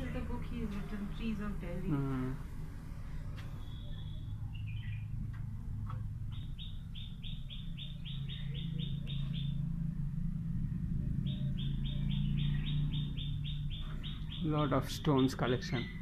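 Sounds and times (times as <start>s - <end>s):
steady low hum: 0.0s - 16.0s
bird chirping rapidly: 6.4s - 9.7s, 11.2s - 16.0s.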